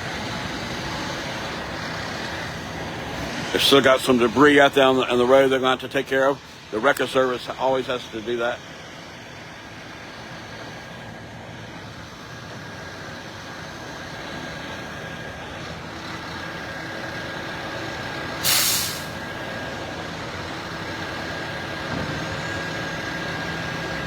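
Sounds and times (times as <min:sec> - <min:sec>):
truck engine running: 0:00.0 - 0:24.0
loud air hiss: 0:18.4 - 0:19.3.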